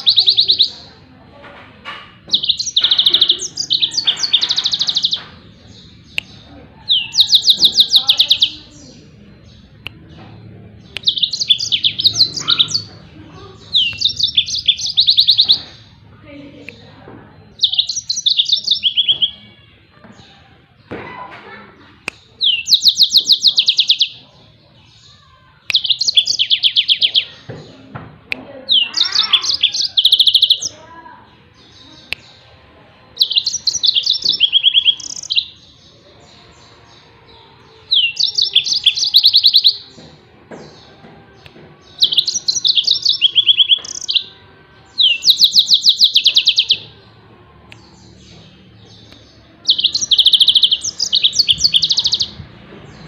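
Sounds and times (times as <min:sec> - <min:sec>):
canary singing fast high trills: 0:10.9 - 0:16.0, 0:17.5 - 0:19.5, 0:22.4 - 0:24.2, 0:28.7 - 0:30.8, 0:33.2 - 0:36.7, 0:41.9 - 0:47.0, 0:49.0 - 0:52.4.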